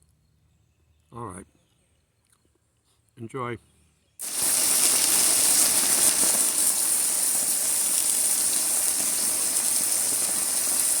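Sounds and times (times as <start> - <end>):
steady hissing noise: 4.2 - 11.0.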